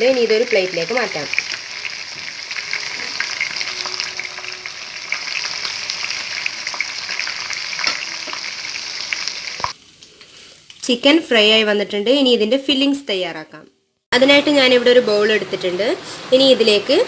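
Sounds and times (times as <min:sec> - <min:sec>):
chicken sizzling in oil: 0:00.0 - 0:11.4.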